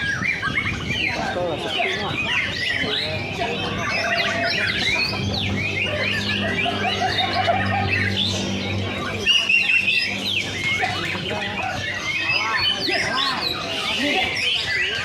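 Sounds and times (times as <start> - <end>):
songbirds whistling and chirping: 0.0 - 15.0
steady low hum: 2.4 - 12.9.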